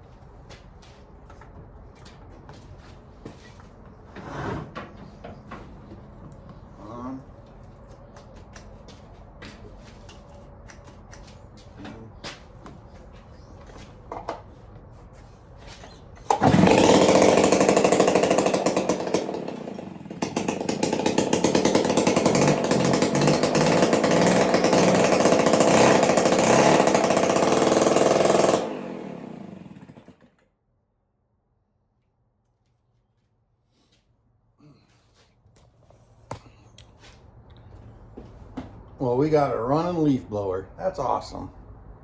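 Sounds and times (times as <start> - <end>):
leaf blower engine running: 16.3 - 30.3.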